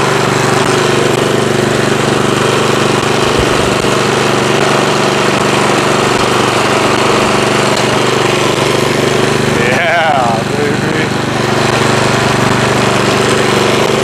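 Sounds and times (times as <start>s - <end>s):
snowblower engine running: 0.0s - 14.0s.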